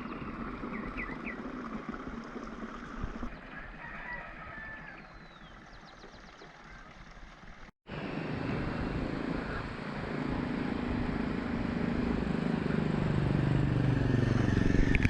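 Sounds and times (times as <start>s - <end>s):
steady outdoor background hiss: 0.0s - 14.7s
rooster crowing faintly: 3.5s - 5.1s.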